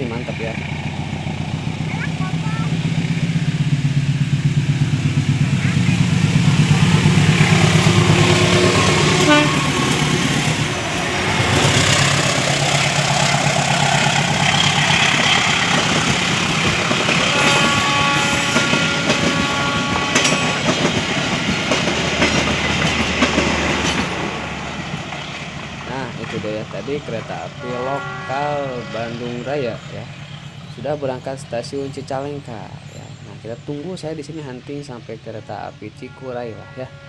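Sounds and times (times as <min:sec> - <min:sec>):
coach wheels clacking over rail joints: 0:00.0 - 0:27.6
diesel locomotive engine passing: 0:00.0 - 0:37.0.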